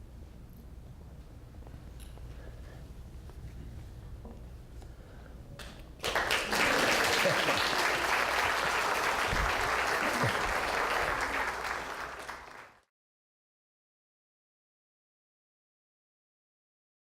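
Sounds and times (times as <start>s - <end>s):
audience applause: 6.0s - 12.8s.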